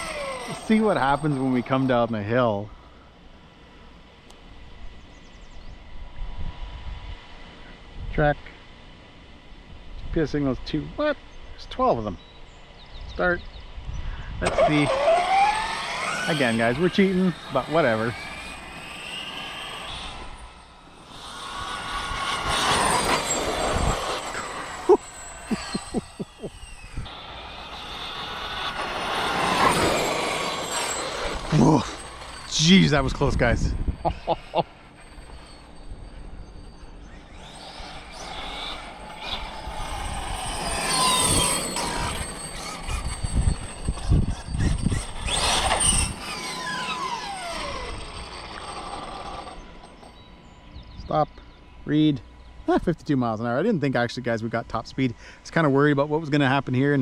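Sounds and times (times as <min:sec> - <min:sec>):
electric motor whining: 0:00.0 - 0:02.6, 0:14.4 - 0:50.9
electric toy truck rushing: 0:00.0 - 0:02.7, 0:14.4 - 0:50.6
low rumbles: 0:13.4 - 0:52.7.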